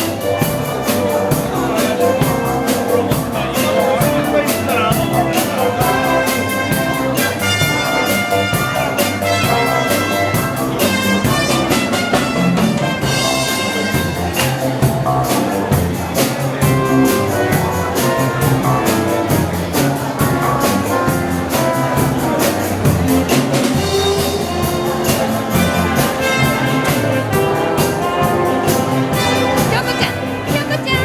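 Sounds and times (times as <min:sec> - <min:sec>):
brass band with drum kit: 0:00.0 - 0:31.0.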